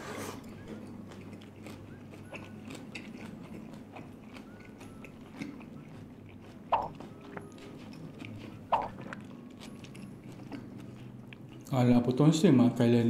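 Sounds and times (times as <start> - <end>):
wet chewing: 0.3 - 11.8
mouth clicks: 6.6 - 7.4, 8.7 - 9.2
loud lip smacks: 6.7 - 7.0, 8.7 - 9.2.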